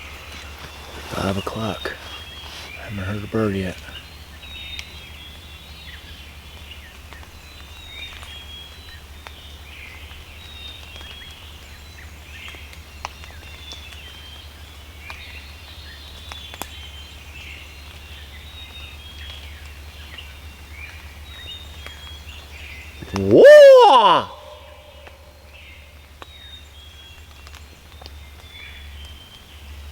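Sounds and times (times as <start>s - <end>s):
songbirds chirping: 0.0s - 5.3s, 22.2s - 25.1s.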